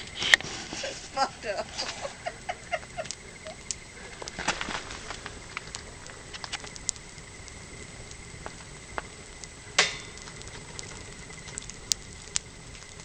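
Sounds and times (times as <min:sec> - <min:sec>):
wood campfire crackling: 0:00.0 - 0:13.0
sharp pop from fire: 0:09.8 - 0:11.0.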